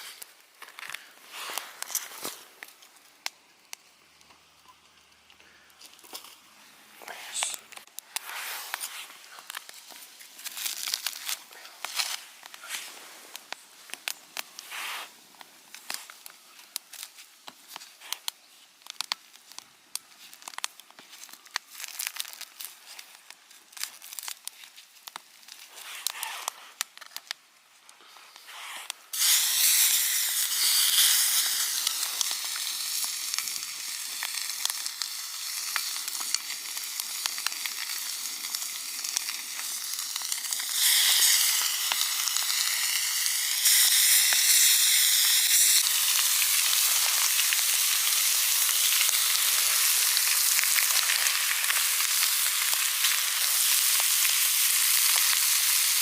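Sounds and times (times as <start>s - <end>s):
packaging crinkling and clicking: 7.7s - 12.6s
meat sizzling in hot pan: 8.1s - 13.1s, 21.2s - 22.6s, 28.6s - 56.0s.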